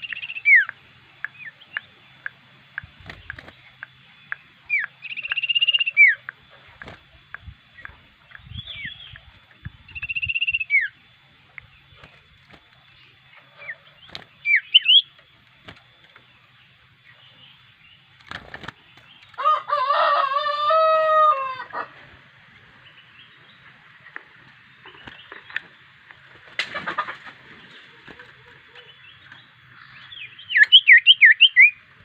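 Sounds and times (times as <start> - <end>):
bird chirps: 0.0 - 15.2, 28.4 - 31.9
faint high whine: 0.0 - 32.0
rooster crowing: 19.4 - 22.0.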